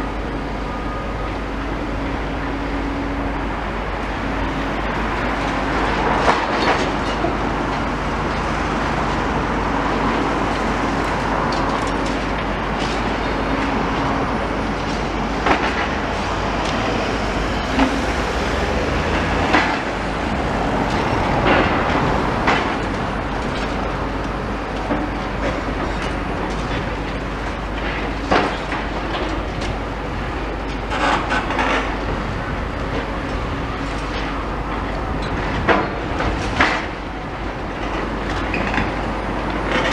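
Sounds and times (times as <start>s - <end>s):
excavator engine running: 0.0s - 39.9s.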